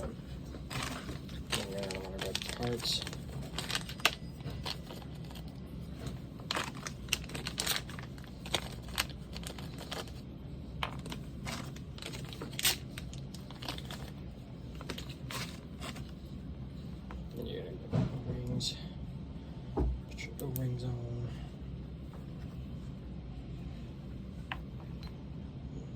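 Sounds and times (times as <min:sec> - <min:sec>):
small parts clicking and rustling: 0:00.0 - 0:10.2, 0:10.8 - 0:16.2
steady low hum: 0:00.0 - 0:25.9.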